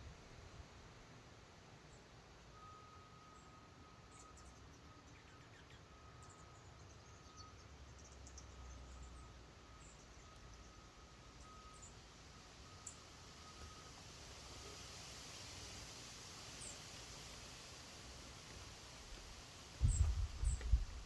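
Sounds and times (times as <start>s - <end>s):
faint bird chirps: 2.6s - 12.0s, 19.8s - 21.0s.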